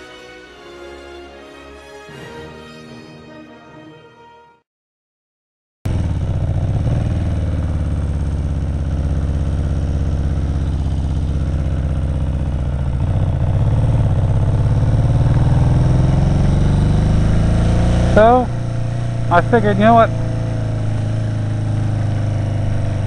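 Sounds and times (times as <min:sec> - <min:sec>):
motorcycle engine running: 0:05.9 - 0:23.0.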